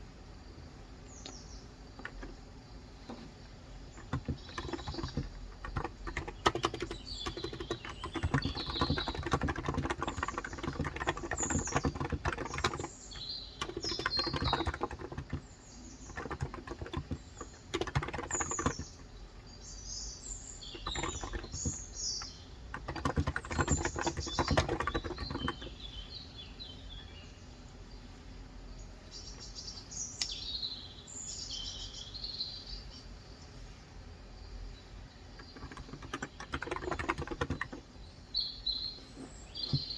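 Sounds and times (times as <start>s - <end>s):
small birds chirping: 0.8s - 39.9s
typing on a keyboard: 2.0s - 2.4s, 3.1s - 19.0s, 20.6s - 25.8s, 35.4s - 37.9s.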